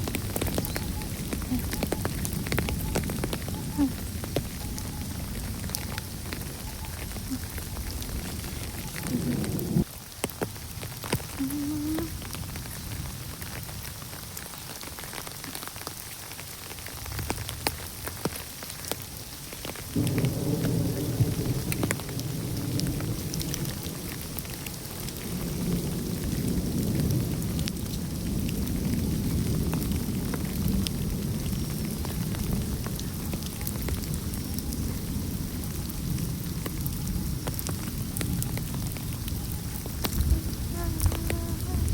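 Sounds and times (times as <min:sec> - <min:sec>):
heavy rain falling: 0:00.0 - 0:41.9
deep low rumble: 0:06.5 - 0:09.9.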